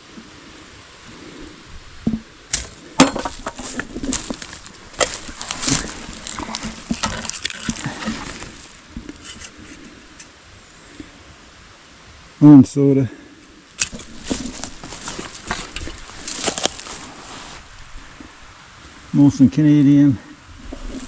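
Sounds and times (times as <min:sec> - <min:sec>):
clattering among bottles and cans: 0:02.1 - 0:09.5, 0:13.8 - 0:17.1.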